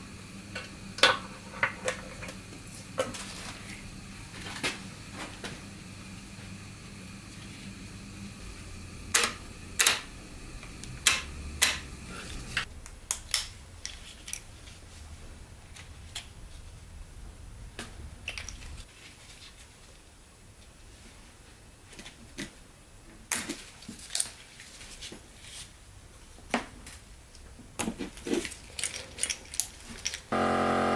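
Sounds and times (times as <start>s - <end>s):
low hum: 8.2s - 13.2s, 30.3s - 30.9s
tools and metal parts clicking: 28.4s - 30.3s.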